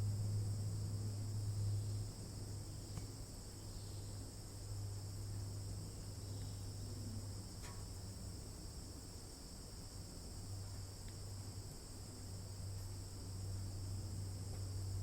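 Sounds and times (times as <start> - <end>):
low hum: 0.0 - 7.6
insects trilling: 0.0 - 15.0.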